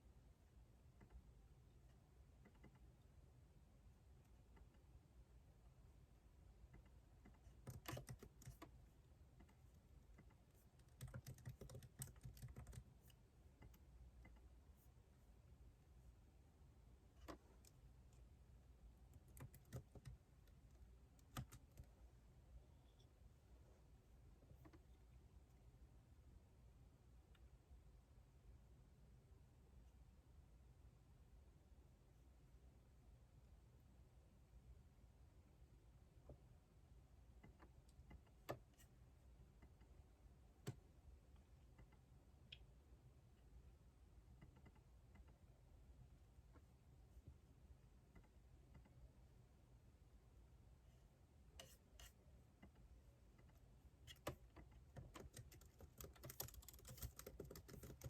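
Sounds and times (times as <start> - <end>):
low room hum: 0.0 - 58.0
computer keyboard keystrokes: 7.4 - 8.7, 10.2 - 12.9, 19.2 - 20.2, 21.2 - 21.9, 54.1 - 58.0.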